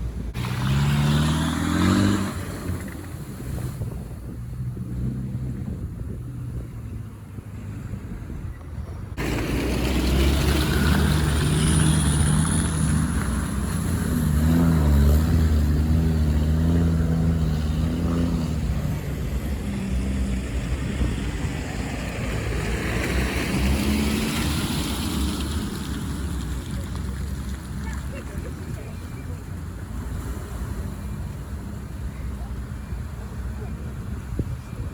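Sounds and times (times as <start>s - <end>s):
vehicle engine revving: 0.0s - 8.4s, 9.1s - 34.9s.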